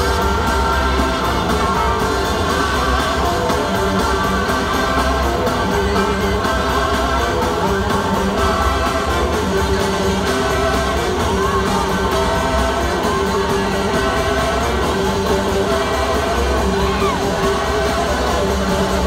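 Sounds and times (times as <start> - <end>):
electric guitar: 0.0 - 19.0
live blues-rock band: 0.0 - 19.0
person singing: 0.0 - 19.0.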